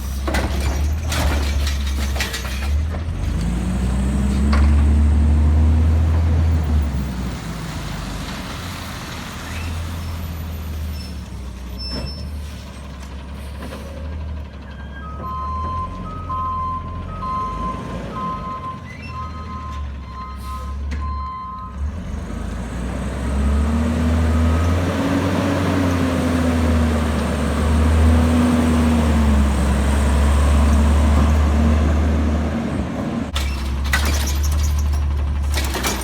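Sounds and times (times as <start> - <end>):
diesel engine revving: 2.8 - 14.6, 15.3 - 33.9
truck backup alarm beeping: 14.5 - 22.1, 23.6 - 26.0.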